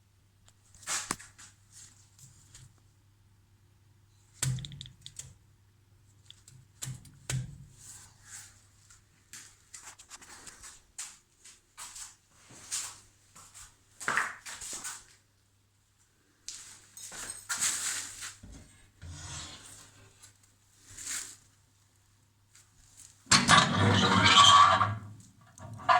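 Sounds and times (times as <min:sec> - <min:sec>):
objects clicking and scraping: 0:23.3 - 0:25.9.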